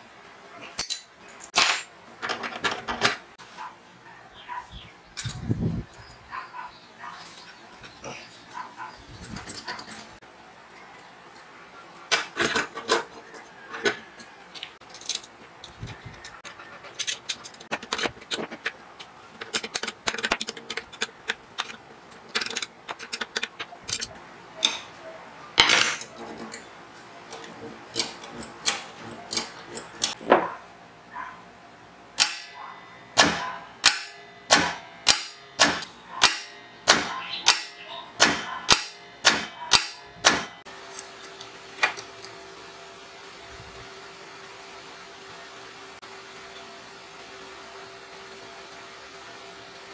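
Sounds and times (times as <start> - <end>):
metal clinks and knocks: 9.2 - 10.1.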